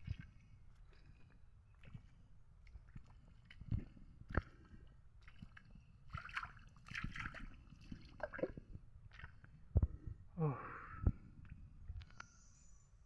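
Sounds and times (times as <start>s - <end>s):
water sloshing and squelching: 0.0s - 10.0s.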